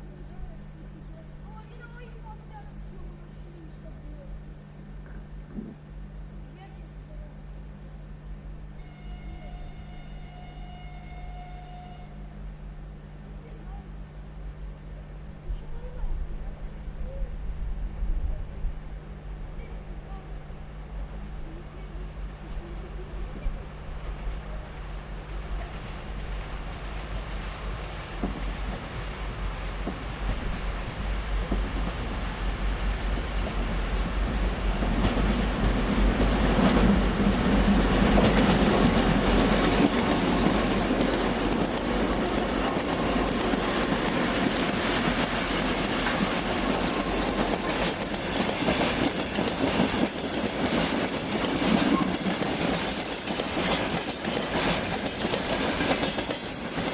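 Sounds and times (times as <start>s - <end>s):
train wheels clacking on rails: 12.6s - 56.9s.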